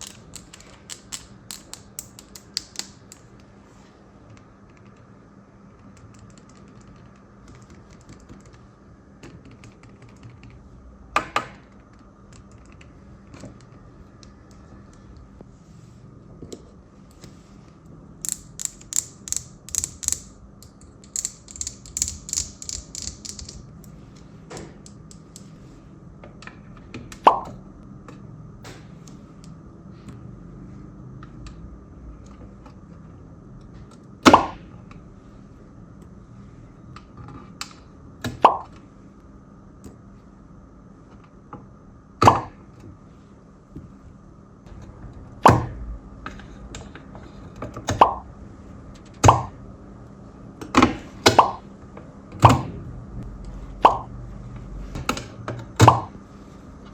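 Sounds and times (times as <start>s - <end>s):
fidget toy clicking: 0.0s - 3.2s, 18.2s - 23.6s.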